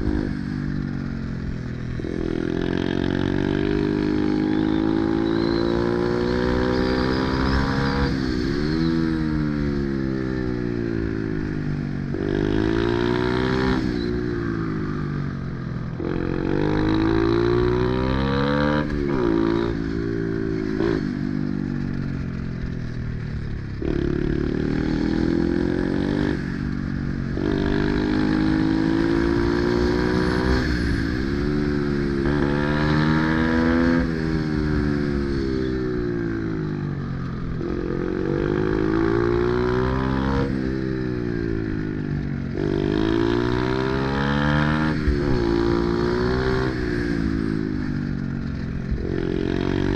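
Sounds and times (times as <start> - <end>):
motorbike engine revving: 27.3 - 36.6.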